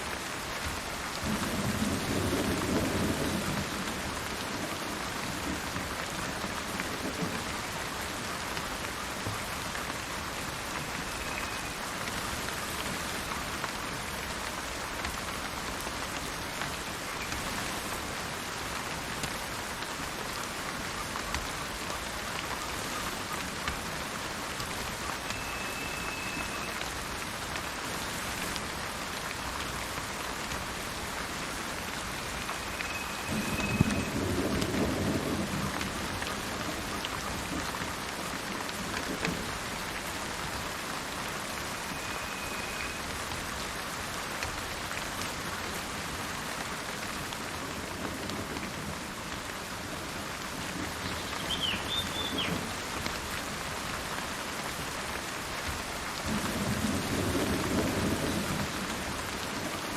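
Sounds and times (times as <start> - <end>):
steady rain falling: 0.0 - 59.9
high bird whistles: 51.4 - 52.5.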